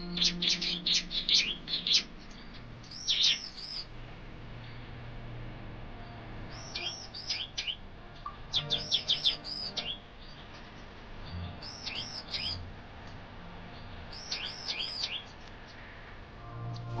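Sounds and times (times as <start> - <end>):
small birds chirping: 0.0 - 4.0, 6.0 - 17.0.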